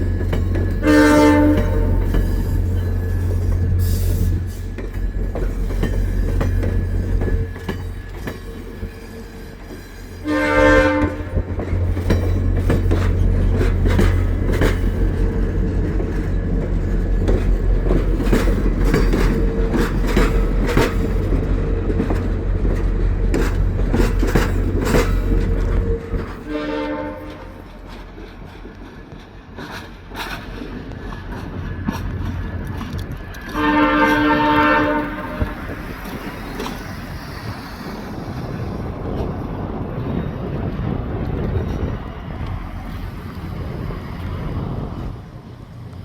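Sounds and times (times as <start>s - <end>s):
wheels clicking over rail joints: 0.0s - 45.2s
diesel locomotive rumbling: 0.0s - 46.0s
train horn blast: 0.8s - 2.7s, 10.2s - 11.6s, 25.5s - 27.7s, 33.5s - 35.8s.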